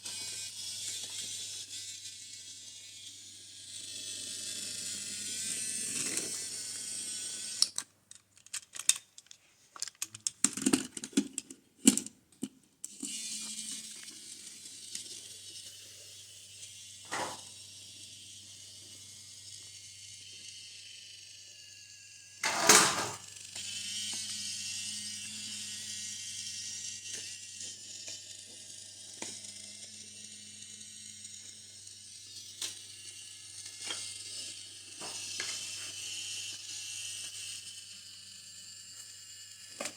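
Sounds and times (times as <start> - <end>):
toy train motor whirring: 0.0 - 39.9.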